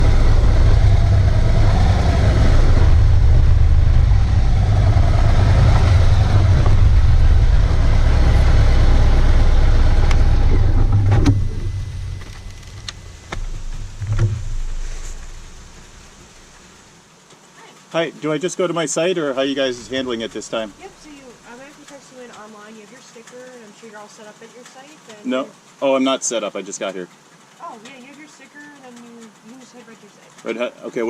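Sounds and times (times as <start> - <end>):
wind noise: 0.0 - 16.8
motorcycle engine rumble: 0.0 - 17.0, 19.3 - 22.3
knocks: 12.2 - 16.3.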